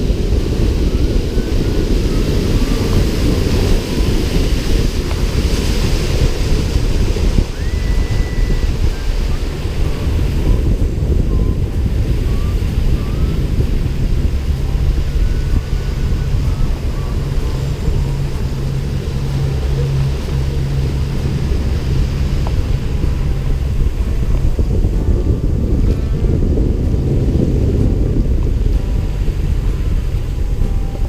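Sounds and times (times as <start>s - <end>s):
speedboat engine droning: 0.0s - 31.0s
wind buffeting microphone: 0.0s - 31.0s.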